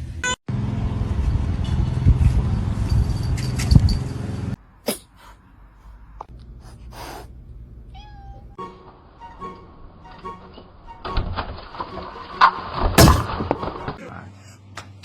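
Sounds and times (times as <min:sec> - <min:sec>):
cat meowing: 0:07.9 - 0:08.6.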